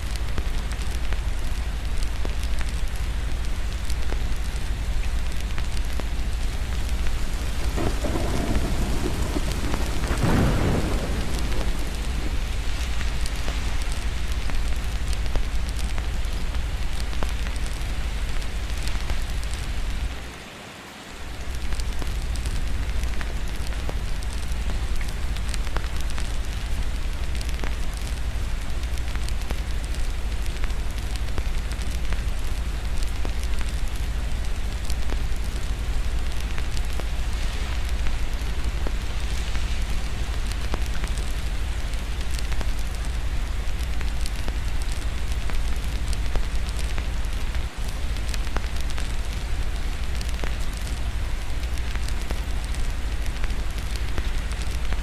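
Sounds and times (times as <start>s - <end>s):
steady rain: 0.0s - 55.0s
low rumble: 5.1s - 16.1s
thunder rolling: 6.6s - 15.2s.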